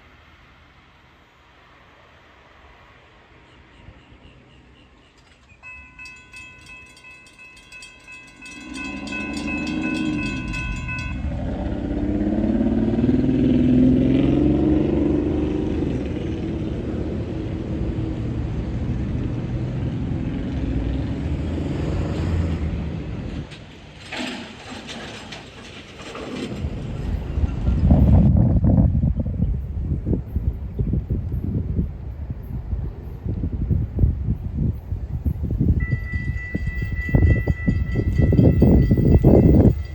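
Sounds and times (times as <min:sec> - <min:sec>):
train passing with heavy rumble: 0:00.0 - 0:39.9
wheels clicking over rail joints: 0:05.0 - 0:13.1, 0:21.7 - 0:28.3, 0:34.7 - 0:39.9
level crossing warning bell: 0:05.6 - 0:12.9, 0:35.6 - 0:39.9
train horn: 0:08.4 - 0:13.0.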